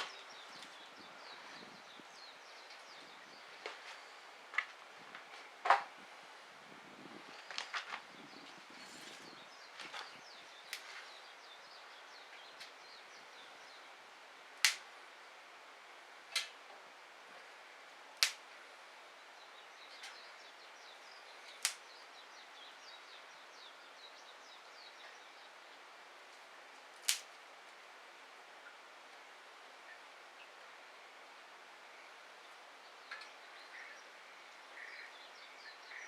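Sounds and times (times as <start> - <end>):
wood fire crackling: 8.8 - 12.8, 14.4 - 15.1, 16.1 - 16.6, 17.2 - 19.0, 19.9 - 22.2, 26.2 - 27.9
fire popping: 14.6 - 14.9, 16.2 - 16.6, 18.1 - 18.5, 21.4 - 21.9, 26.7 - 27.4.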